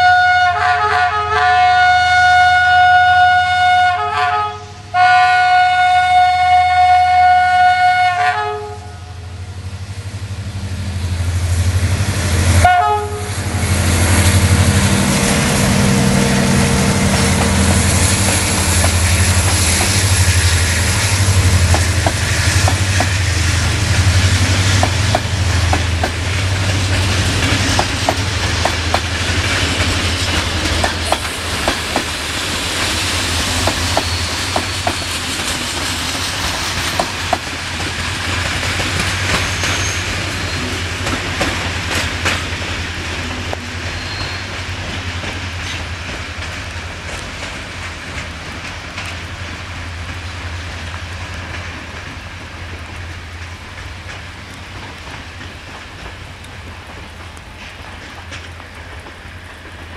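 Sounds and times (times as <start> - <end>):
train wheels clicking over rail joints: 16.5 - 59.9.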